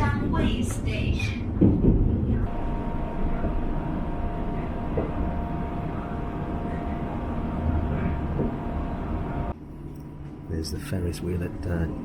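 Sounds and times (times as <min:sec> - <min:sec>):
train rumbling on track: 0:00.0 - 0:09.5
train whine: 0:00.0 - 0:09.6.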